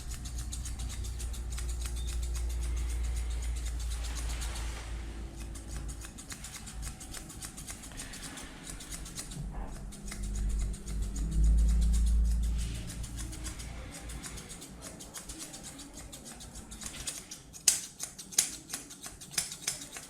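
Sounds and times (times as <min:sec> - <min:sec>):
scissors snipping: 0:00.0 - 0:20.0
low rumble: 0:09.3 - 0:13.9.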